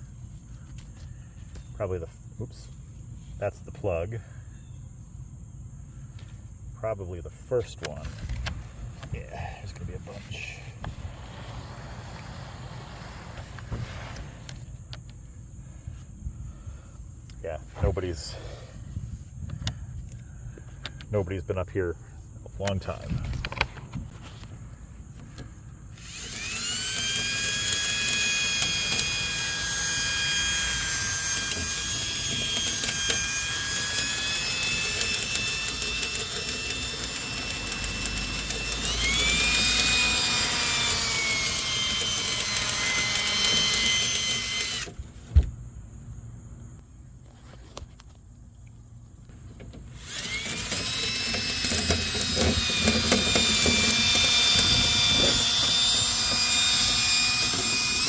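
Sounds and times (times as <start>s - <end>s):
power drill motor whine: 7.9s - 15.2s, 25.2s - 45.0s, 49.7s - 58.0s.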